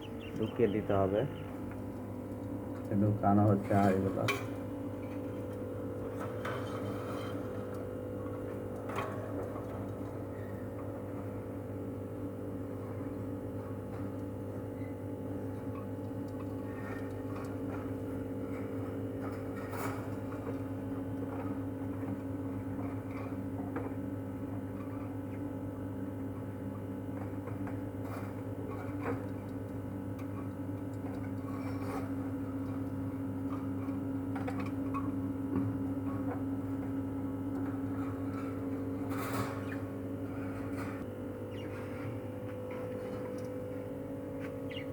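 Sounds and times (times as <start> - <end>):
electrical hum: 0.0 - 44.9
faint clicks and knocks: 1.5 - 4.5.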